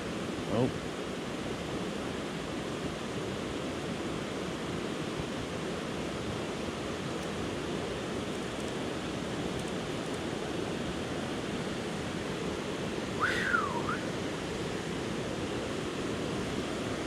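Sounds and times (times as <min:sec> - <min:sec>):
creek water rushing: 0:00.0 - 0:17.0
brief whistle sweeping: 0:13.2 - 0:14.1.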